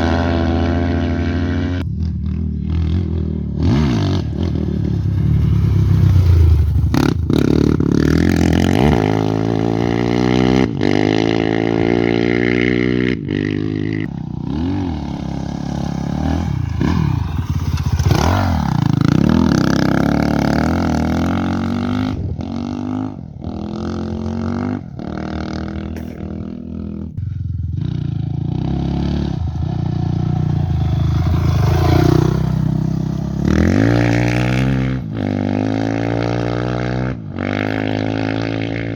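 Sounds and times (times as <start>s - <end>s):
motorcycles revving past: 0.0s - 38.9s.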